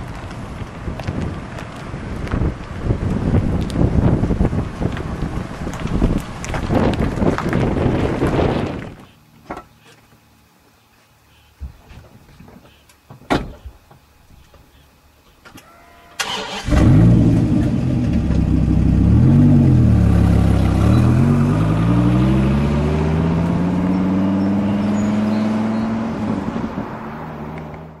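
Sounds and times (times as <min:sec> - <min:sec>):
car engine cranking: 0:16.2 - 0:21.6
car engine revving: 0:16.2 - 0:28.0.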